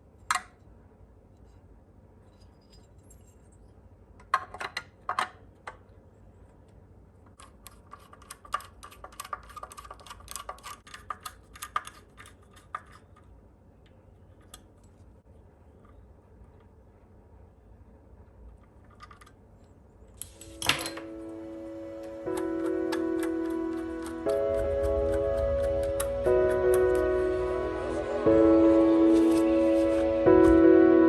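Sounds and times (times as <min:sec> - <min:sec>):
small parts clicking and tapping: 0:07.2 - 0:15.0.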